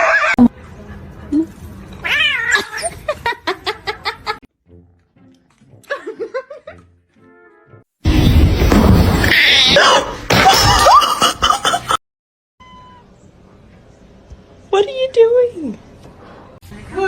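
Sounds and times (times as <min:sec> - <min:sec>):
cat caterwauling and meowing: 0:02.0 - 0:02.9.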